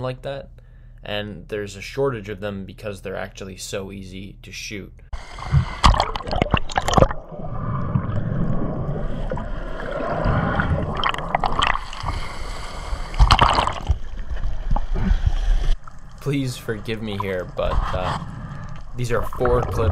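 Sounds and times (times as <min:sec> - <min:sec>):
seawater splashing: 0:05.2 - 0:19.9
muffled underwater gurgling: 0:16.2 - 0:19.9.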